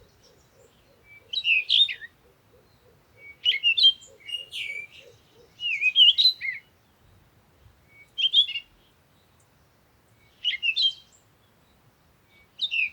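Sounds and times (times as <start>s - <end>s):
bird warbling song: 0.0s - 7.2s.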